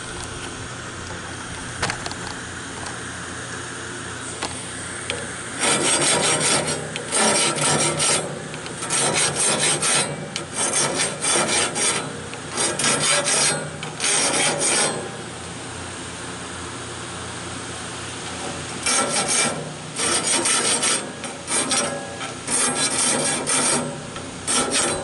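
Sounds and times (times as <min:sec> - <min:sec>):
file rasping on saw blade: 0:05.6 - 0:15.2, 0:18.8 - 0:25.0.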